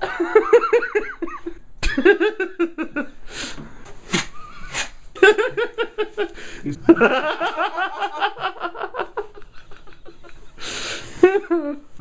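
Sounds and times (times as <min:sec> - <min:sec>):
breathy gasps: 0:06.4 - 0:06.8.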